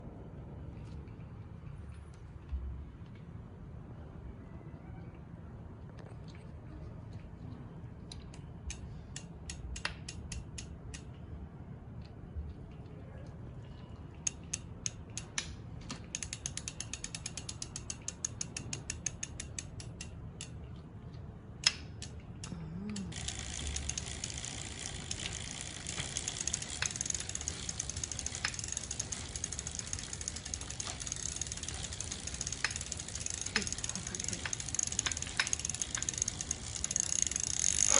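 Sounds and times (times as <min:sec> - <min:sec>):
bicycle drivetrain clicking: 0:08.1 - 0:11.2, 0:14.2 - 0:20.6, 0:23.1 - 0:37.9.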